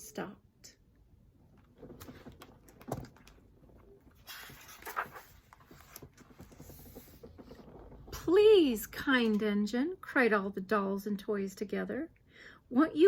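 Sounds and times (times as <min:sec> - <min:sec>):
paper page rustling: 0:04.1 - 0:07.1.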